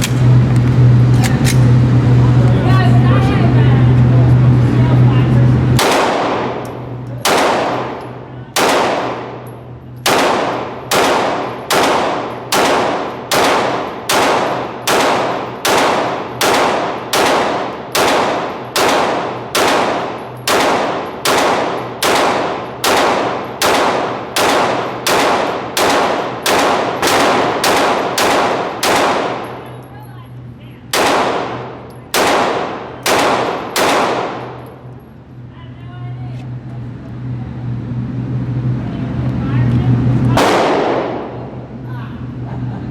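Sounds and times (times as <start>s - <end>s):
pistol shots echoing indoors: 5.8s - 29.8s, 30.9s - 34.7s, 40.4s - 41.6s.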